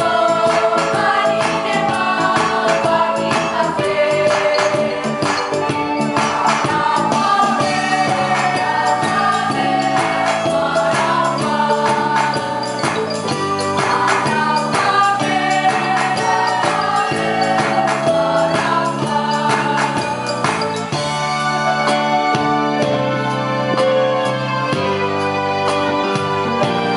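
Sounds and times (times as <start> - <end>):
choir singing in harmony: 0.0 - 22.1
instrumental accompaniment with beat: 0.0 - 26.9.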